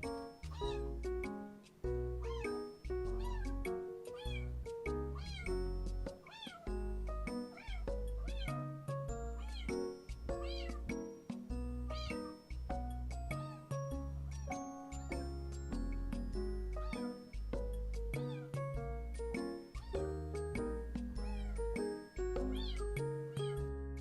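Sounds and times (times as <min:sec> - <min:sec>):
background music: 0:00.0 - 0:24.0
kitten meowing: 0:00.5 - 0:01.0, 0:02.2 - 0:02.5, 0:03.1 - 0:04.5, 0:05.1 - 0:05.5, 0:06.2 - 0:06.7, 0:07.5 - 0:08.6, 0:09.4 - 0:10.8, 0:11.9 - 0:12.3, 0:13.3 - 0:13.8, 0:16.8 - 0:17.0, 0:18.2 - 0:18.6, 0:19.8 - 0:20.1, 0:21.2 - 0:21.7, 0:22.4 - 0:23.6.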